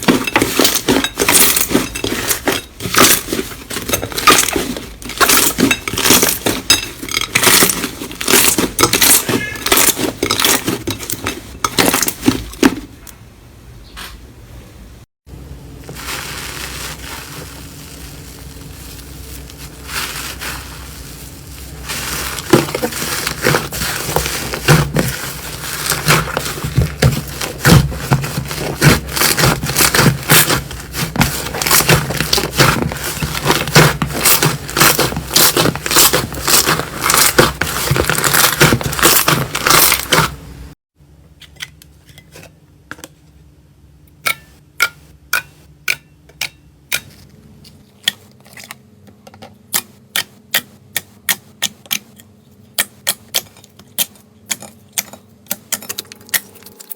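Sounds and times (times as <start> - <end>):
slime squishing: 15.8 - 40.4.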